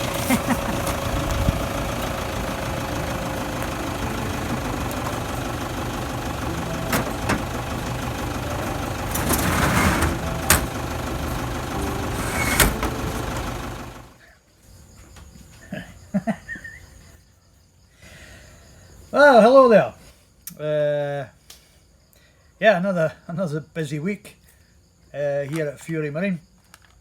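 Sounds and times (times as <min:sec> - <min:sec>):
motor running steadily: 0:00.0 - 0:14.2.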